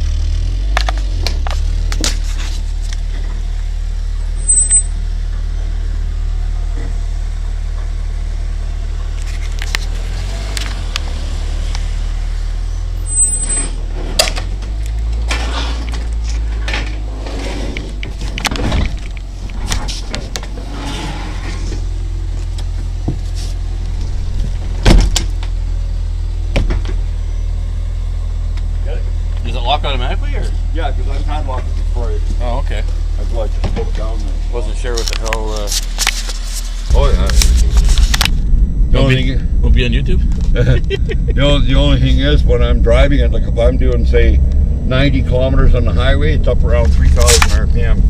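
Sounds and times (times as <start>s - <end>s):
car engine running: 0.0s - 48.0s.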